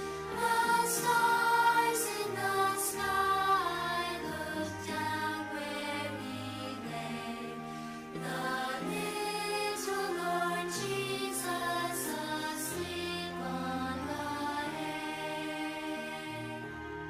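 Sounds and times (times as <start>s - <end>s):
choir singing a slow carol: 0.0s - 17.0s.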